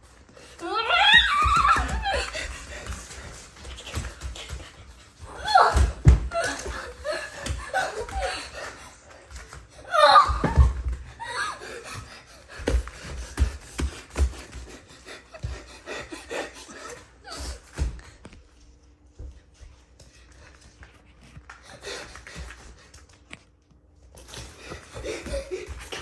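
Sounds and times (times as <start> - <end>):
children squealing and laughing: 0.6 - 2.8, 9.9 - 11.8.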